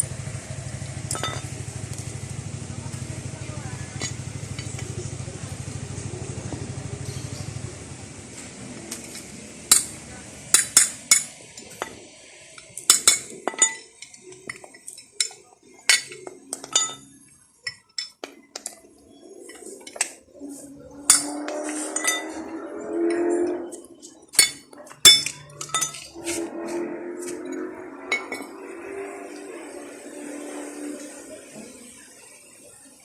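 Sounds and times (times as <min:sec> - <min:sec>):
low steady hum: 0:00.0 - 0:12.6
metal tools clinking: 0:01.0 - 0:02.2, 0:03.9 - 0:05.0, 0:12.6 - 0:20.3, 0:21.0 - 0:26.5, 0:27.4 - 0:29.5.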